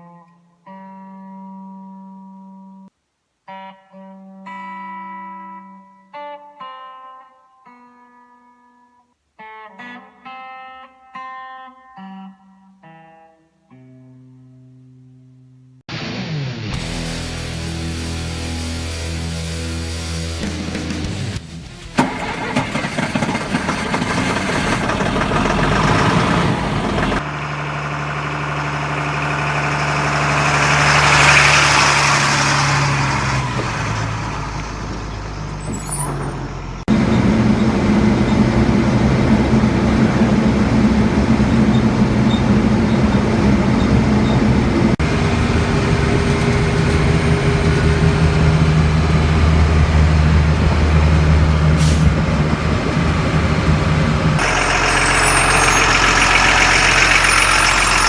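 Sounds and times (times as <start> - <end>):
truck diesel engine running: 21.9 - 58.0.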